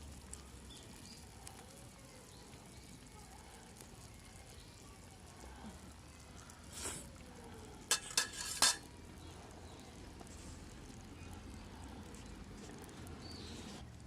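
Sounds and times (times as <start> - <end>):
food frying on metal: 0.0 - 14.0
utensil scraping and clinking metal: 7.9 - 8.9.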